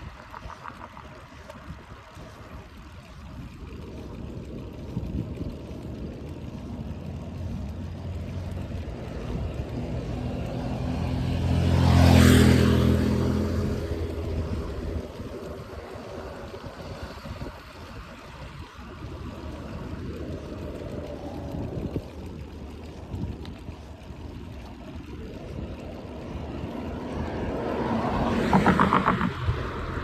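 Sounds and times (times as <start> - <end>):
motor vehicle passing: 0.0 - 30.0
road noise: 0.0 - 30.0
wind: 0.0 - 30.0.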